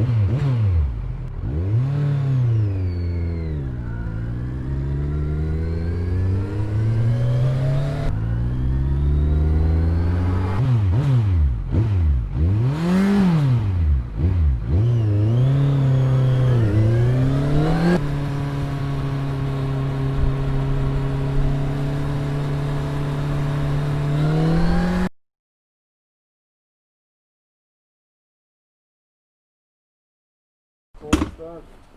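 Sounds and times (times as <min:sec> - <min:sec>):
motorcycle engine revving: 0:00.0 - 0:25.1.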